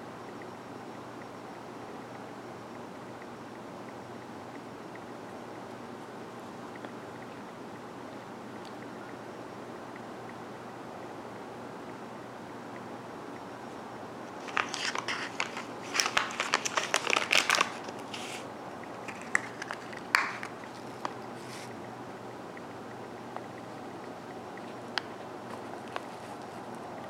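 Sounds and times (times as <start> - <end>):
steady hiss: 3.4 - 27.0
plastic wrapper crinkling: 14.4 - 21.7.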